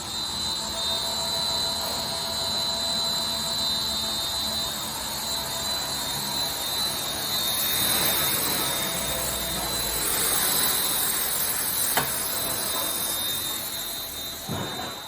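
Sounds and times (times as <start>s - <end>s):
high steady whine: 0.0s - 15.0s.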